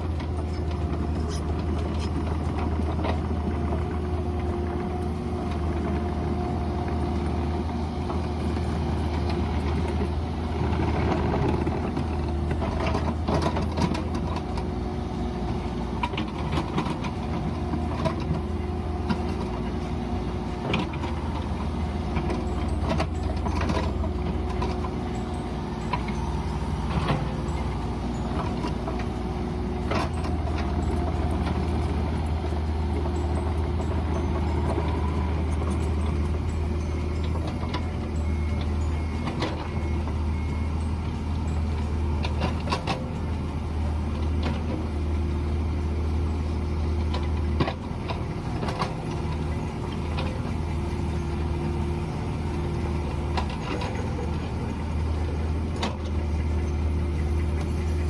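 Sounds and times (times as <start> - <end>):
excavator engine running: 0.0 - 58.0.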